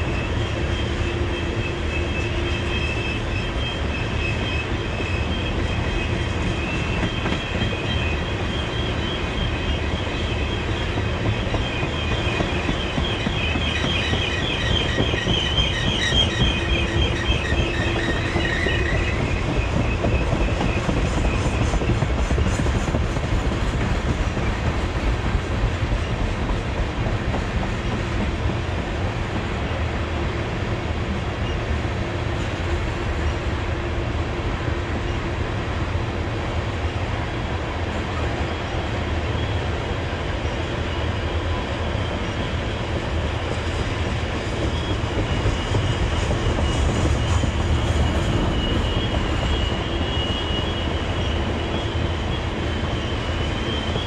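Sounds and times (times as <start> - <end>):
steel wheels rumbling on rails: 0.0 - 54.0
high metallic squeal: 0.1 - 22.0, 44.7 - 54.0.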